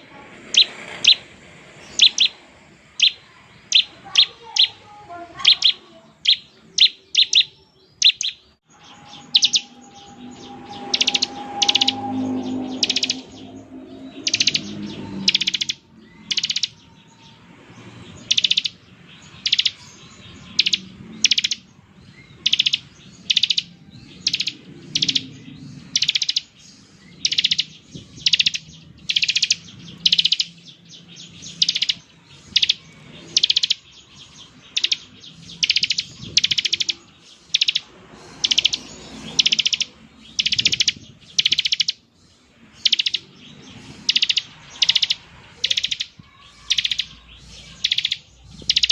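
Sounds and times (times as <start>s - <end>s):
bird giving buzzy trills: 0.0s - 21.7s.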